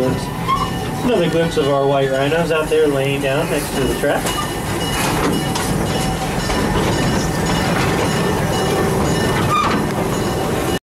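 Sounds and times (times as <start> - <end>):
train wheels rumbling: 0.0 - 10.8
clacks over rail joints: 3.8 - 10.8.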